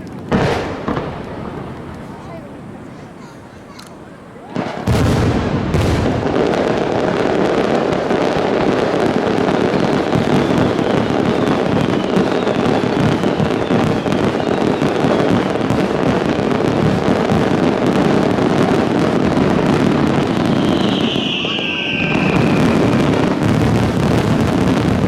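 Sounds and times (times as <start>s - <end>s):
fireworks booming and crackling: 0.0s - 25.0s
faint falling whistle: 20.2s - 23.0s.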